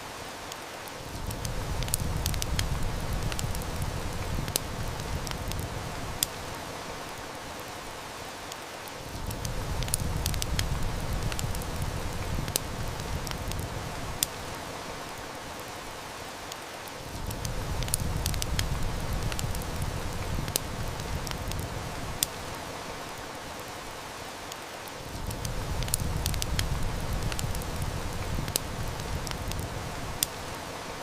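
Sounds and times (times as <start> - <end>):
heavy rain hissing: 0.0 - 31.0
wood fire crackling: 0.0 - 31.0.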